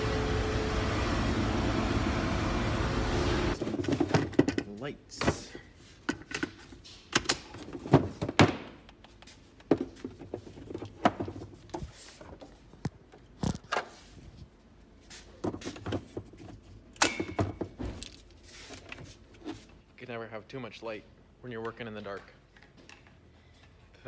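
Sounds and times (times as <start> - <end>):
equipment knocks and clunks: 3.6 - 5.4, 7.2 - 8.8, 15.4 - 18.2.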